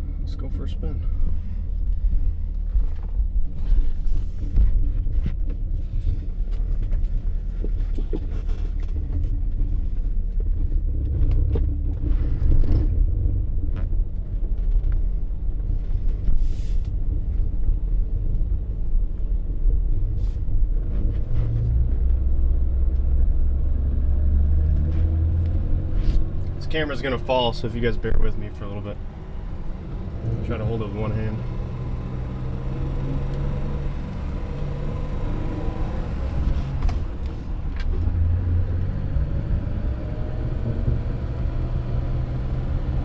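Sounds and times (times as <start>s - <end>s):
car engine rumbling: 0.0s - 43.0s.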